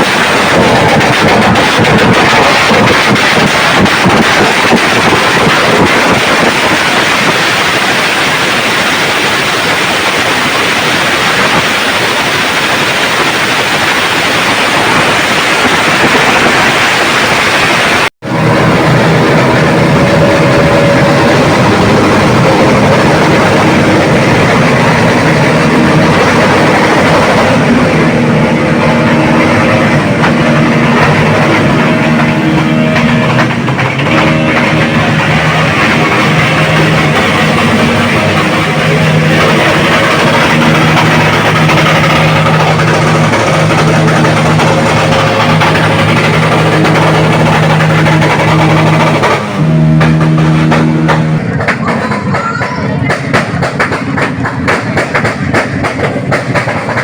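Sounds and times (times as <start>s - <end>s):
motorcycle engines running: 0.0s - 57.0s
music with held notes: 18.4s - 55.0s.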